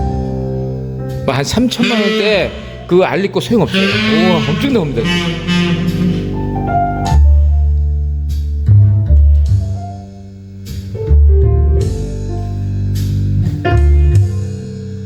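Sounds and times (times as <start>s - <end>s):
deep bass notes: 1.3s - 9.2s
plucked notes: 1.7s - 7.0s.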